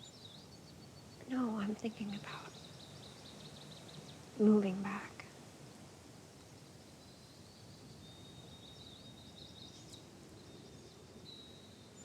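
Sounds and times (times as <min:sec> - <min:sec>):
distant birds chirping: 0:00.0 - 0:05.3
background hiss: 0:00.0 - 0:12.0.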